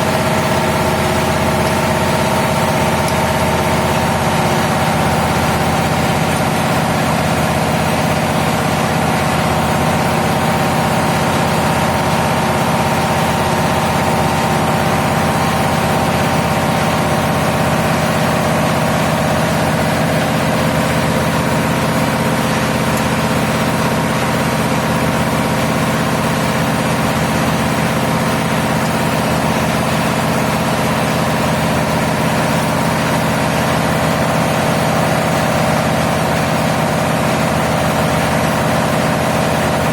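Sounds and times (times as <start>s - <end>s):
diesel machinery drone: 0.0s - 39.9s.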